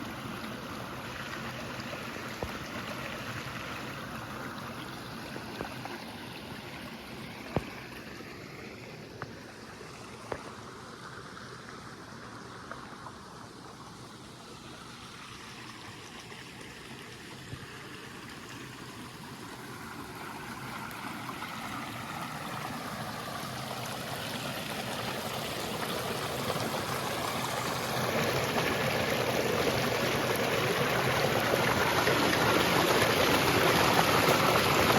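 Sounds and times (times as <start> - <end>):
waterfall rushing: 24.8 - 34.9.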